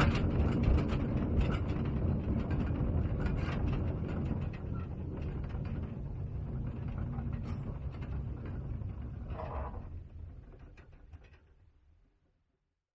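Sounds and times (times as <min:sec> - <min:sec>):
mine train rattling on rails: 0:00.0 - 0:10.0.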